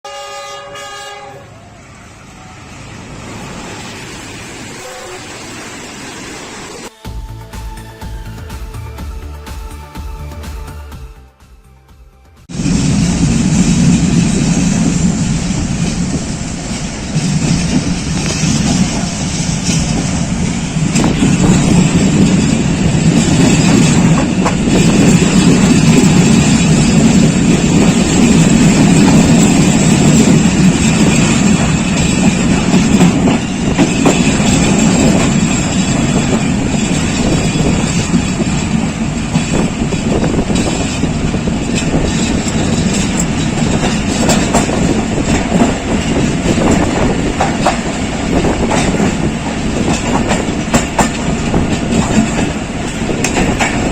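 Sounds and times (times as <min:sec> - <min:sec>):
train wheels rumbling on rails: 0:12.4 - 0:53.9.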